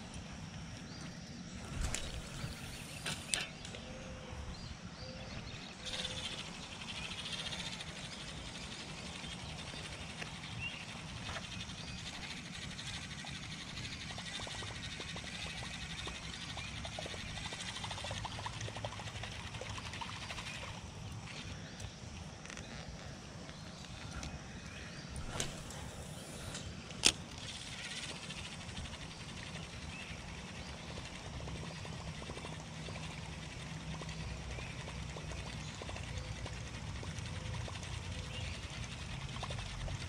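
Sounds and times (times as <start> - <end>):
fishing reel whirring: 1.6 - 3.6, 5.8 - 21.7, 25.0 - 40.0
fishing rod clicks: 1.7 - 3.8, 25.2 - 29.0.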